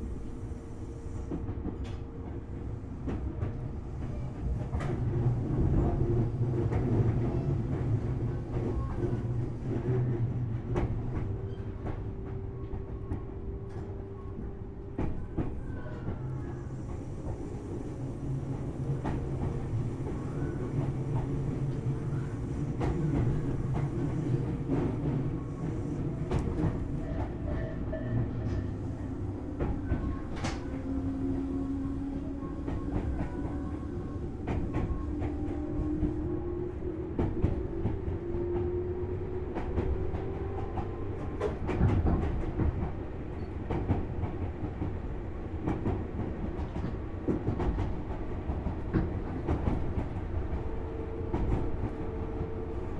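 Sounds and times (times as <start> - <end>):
train rumble: 0.0 - 52.9
train humming tone: 3.4 - 42.4.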